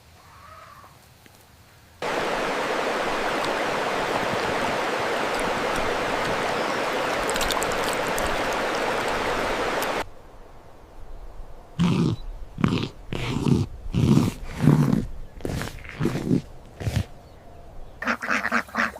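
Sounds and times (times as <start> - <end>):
rushing water: 2.0 - 10.1.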